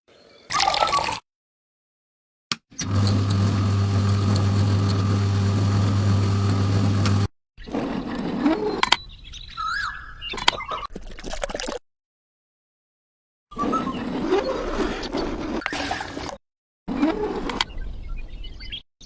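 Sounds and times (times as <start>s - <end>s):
motor humming: 2.8s - 7.3s.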